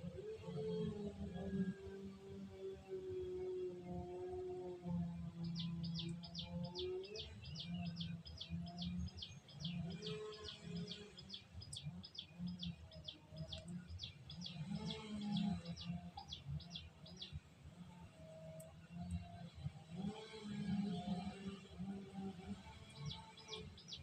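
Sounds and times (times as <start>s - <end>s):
bird chirping: 5.3s - 17.4s, 22.8s - 24.0s.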